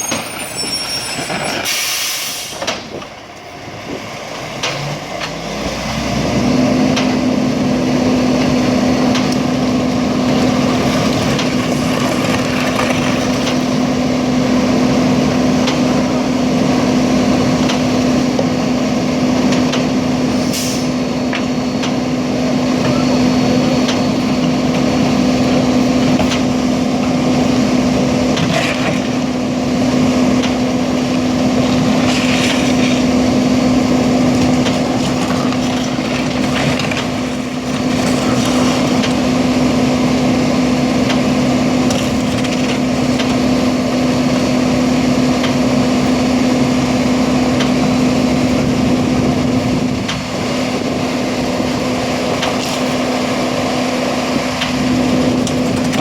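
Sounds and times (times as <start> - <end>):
truck engine running: 2.8 - 56.0
trash crunching in compactor: 3.9 - 16.0, 26.0 - 46.2.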